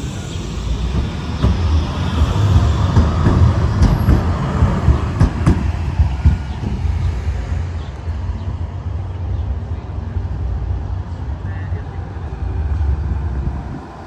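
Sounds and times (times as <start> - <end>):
tram rumbling on rails: 0.0 - 14.0
sharp knocks: 1.0 - 7.5.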